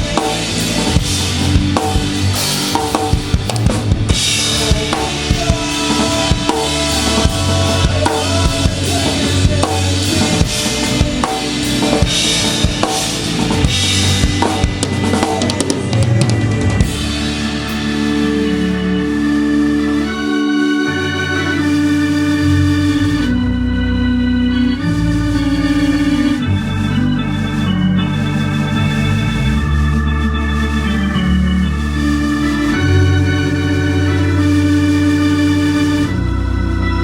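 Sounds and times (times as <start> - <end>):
drum kit: 0.0 - 23.5
live rock band playing: 0.0 - 37.0
organ-like held chords: 0.0 - 37.0.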